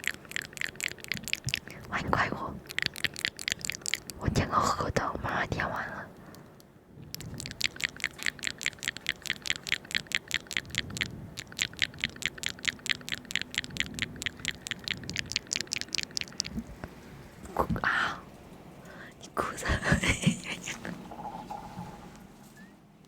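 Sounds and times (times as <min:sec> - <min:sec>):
rapid tapping clicks: 0:00.0 - 0:04.4, 0:06.2 - 0:17.0.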